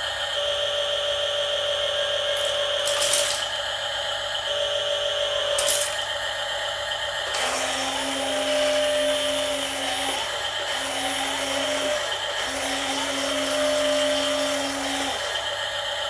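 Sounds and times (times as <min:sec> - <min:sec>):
small electric motors whining: 0:01.8 - 0:03.6, 0:04.7 - 0:06.1, 0:07.2 - 0:16.0.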